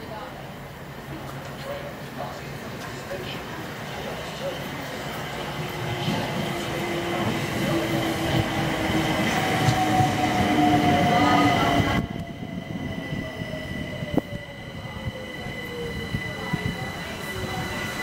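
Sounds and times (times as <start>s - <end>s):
high-pitched train whines: 3.9s - 18.0s.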